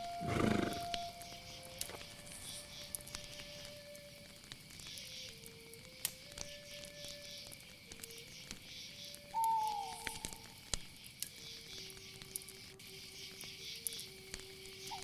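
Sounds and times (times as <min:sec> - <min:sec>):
soft slow melody: 0:00.0 - 0:10.6
crickets chirring: 0:00.0 - 0:15.0.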